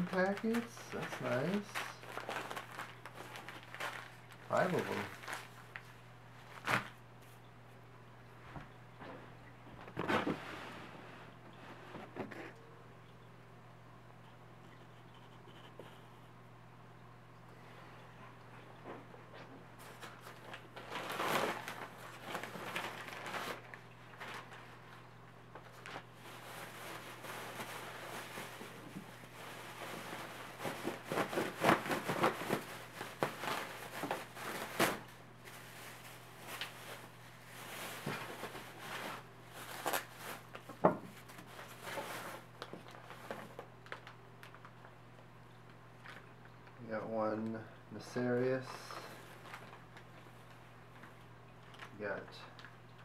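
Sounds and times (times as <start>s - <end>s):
plastic packaging crinkling: 0.0s - 7.4s, 19.8s - 46.8s, 48.6s - 53.0s.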